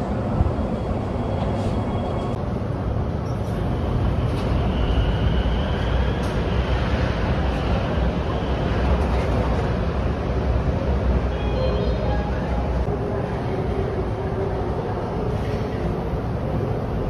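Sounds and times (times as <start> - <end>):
train wheels rumbling on track: 0.0 - 11.3.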